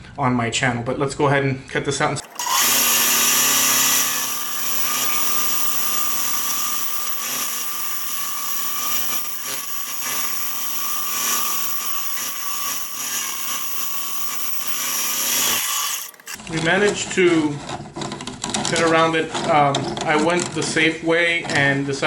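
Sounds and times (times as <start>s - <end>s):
bandsaw cutting wood: 2.2s - 16.5s.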